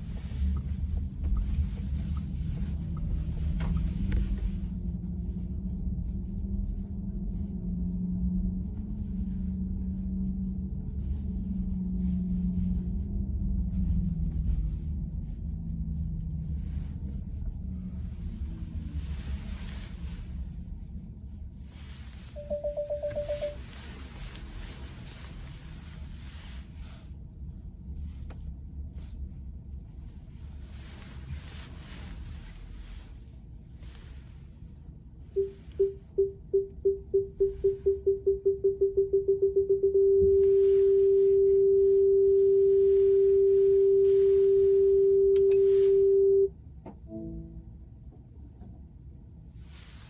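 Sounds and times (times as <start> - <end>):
car driving rumble: 0.0 - 49.4
short beeps: 22.4 - 23.6, 35.4 - 46.5
faint click: 45.3 - 45.6.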